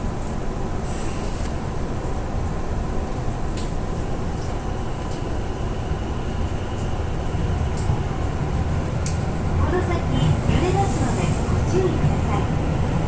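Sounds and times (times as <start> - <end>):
train running rumble: 0.0 - 13.0
faint clicks: 9.0 - 9.2.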